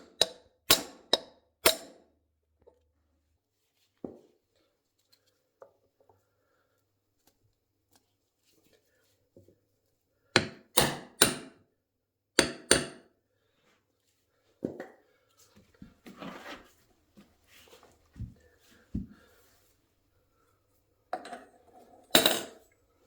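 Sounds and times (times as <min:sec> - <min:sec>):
tools knocking and clinking: 0:21.2 - 0:22.7.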